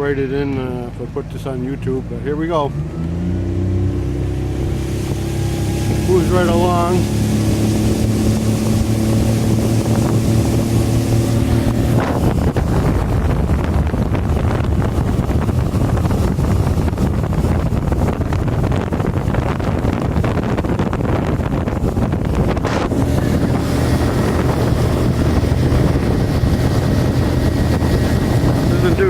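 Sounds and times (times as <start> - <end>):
outboard motor running: 0.0 - 29.0
wind buffeting microphone: 0.0 - 29.0.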